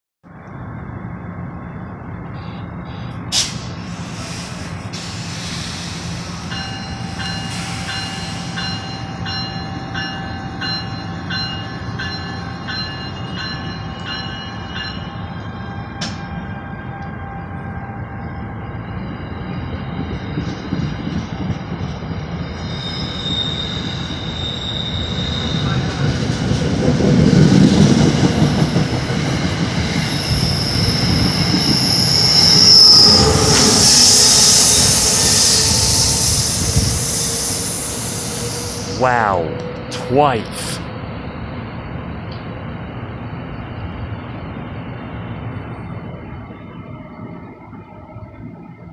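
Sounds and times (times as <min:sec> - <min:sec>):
train rumble: 0:00.2 - 0:48.9
train wheel noise: 0:02.4 - 0:40.1
high-pitched wheel squeal: 0:22.5 - 0:25.9, 0:29.8 - 0:39.9.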